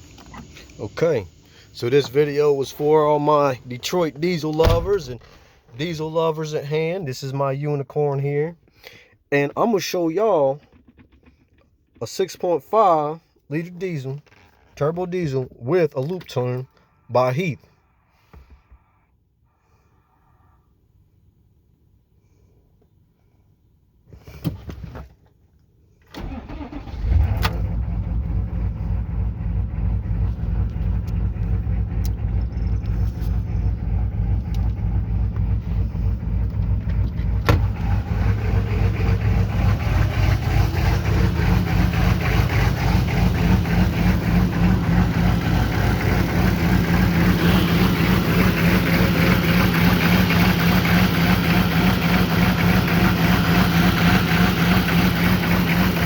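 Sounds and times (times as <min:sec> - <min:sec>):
diesel engine cranking and idling: 0:00.0 - 0:07.0, 0:09.6 - 0:15.4, 0:26.1 - 0:56.0.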